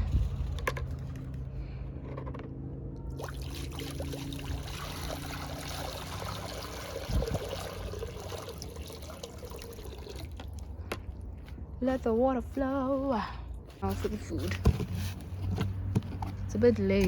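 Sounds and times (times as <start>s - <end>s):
water pouring into dish: 3.2s - 10.7s.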